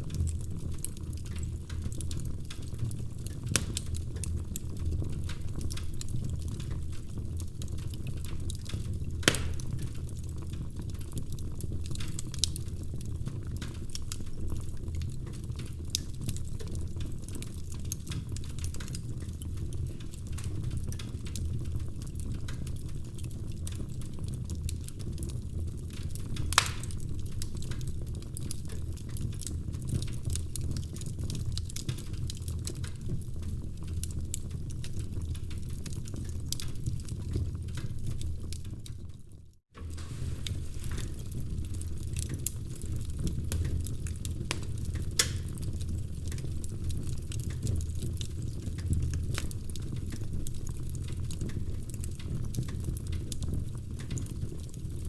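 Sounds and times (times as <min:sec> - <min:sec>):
wood fire crackling: 0:00.0 - 0:55.0
sharp pops of fire: 0:03.4 - 0:04.0, 0:09.2 - 0:10.0, 0:26.4 - 0:27.5, 0:39.8 - 0:46.4.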